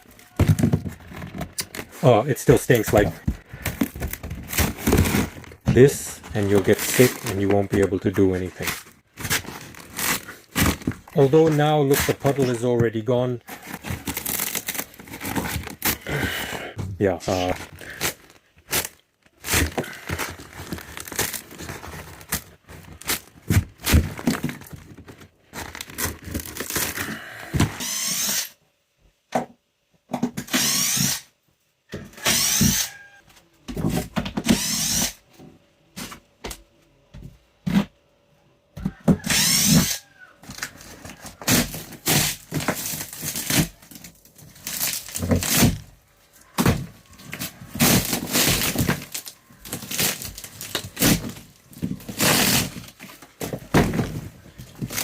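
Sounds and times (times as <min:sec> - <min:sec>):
power drill whirring: 0:27.8 - 0:28.5, 0:30.5 - 0:31.2, 0:32.2 - 0:33.0, 0:34.5 - 0:35.2, 0:39.2 - 0:40.0.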